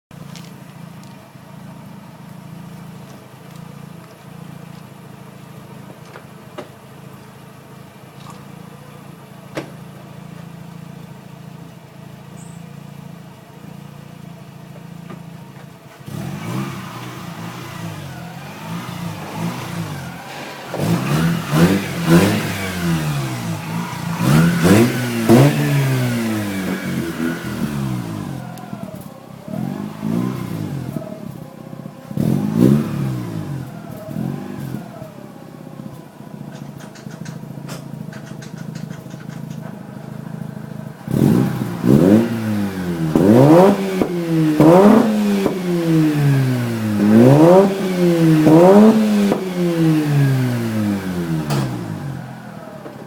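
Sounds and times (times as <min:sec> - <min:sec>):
rotary engine idling and revving: 0:00.1 - 0:53.0
exhaust pops: 0:14.7 - 0:34.9, 0:35.9 - 0:50.6, 0:51.3 - 0:53.0.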